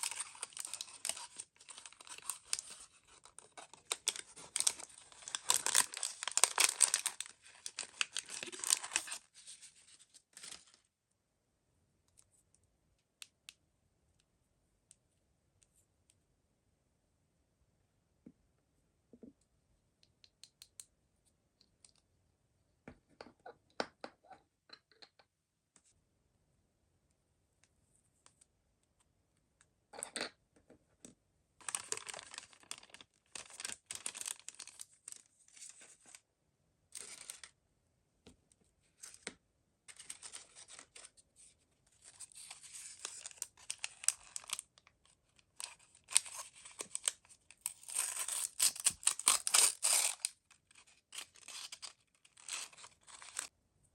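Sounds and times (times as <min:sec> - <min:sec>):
wrapper tearing and rustling: 0:00.0 - 0:10.8, 0:31.6 - 0:35.8, 0:37.0 - 0:37.5, 0:42.0 - 0:44.7, 0:45.6 - 0:53.5.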